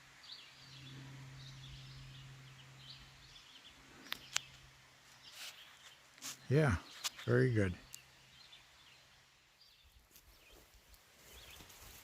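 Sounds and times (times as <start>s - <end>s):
steady low hum: 0.0s - 5.3s.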